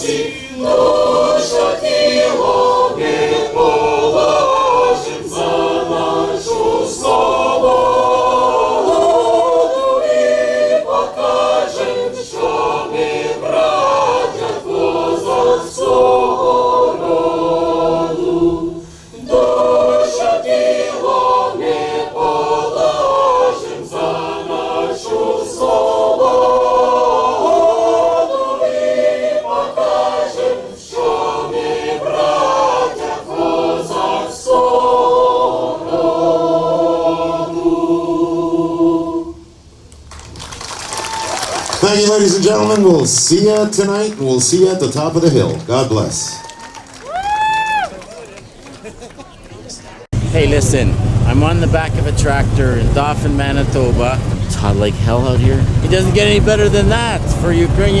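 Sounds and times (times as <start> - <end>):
group singing an anthem: 0.0 - 39.5, 50.1 - 58.0.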